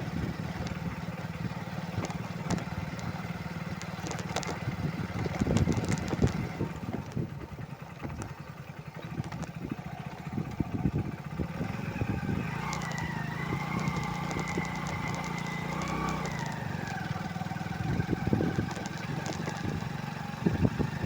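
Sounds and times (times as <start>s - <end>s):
motorcycle engine running: 0.0s - 21.0s
knocks and rattles: 2.0s - 3.1s, 3.7s - 7.3s, 9.1s - 9.7s, 12.7s - 17.2s, 18.4s - 20.0s.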